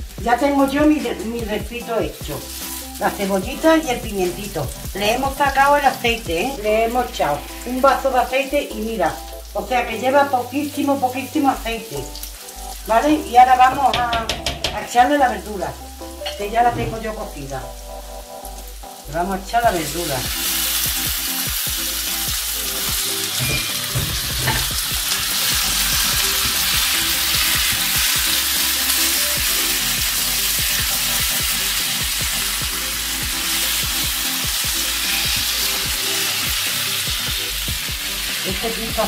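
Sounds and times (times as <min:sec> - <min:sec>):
vegetables sizzling in hot oil: 0:00.0 - 0:39.0
spatula knocking and scraping pan: 0:13.6 - 0:14.9, 0:23.3 - 0:24.9.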